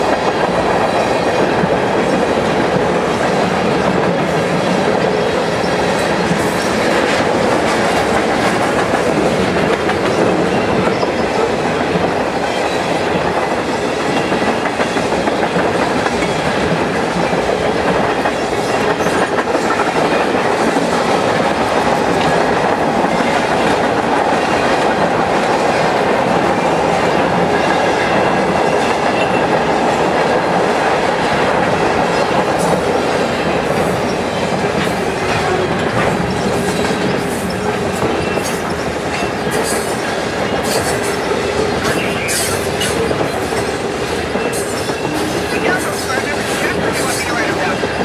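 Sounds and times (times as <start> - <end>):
steel wheels rumbling on rails: 0.0 - 48.0.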